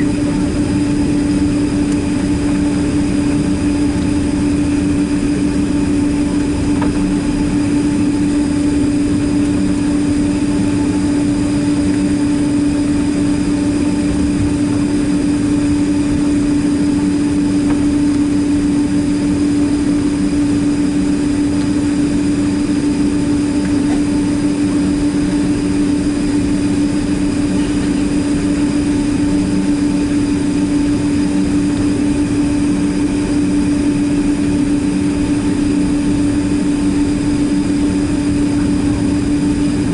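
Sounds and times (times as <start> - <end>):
jet engines droning in cabin: 0.0 - 39.9.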